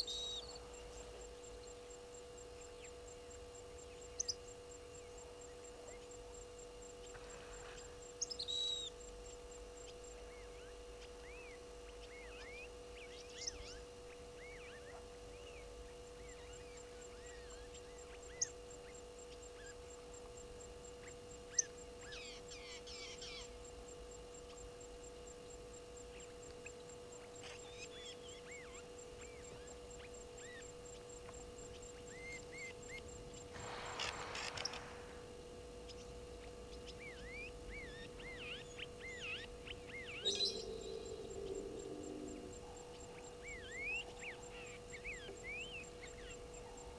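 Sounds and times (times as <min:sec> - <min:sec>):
steady hum: 0:00.0 - 0:46.9
harsh noisy burst: 0:33.5 - 0:35.4
birds chirping and whistling: 0:35.9 - 0:44.3.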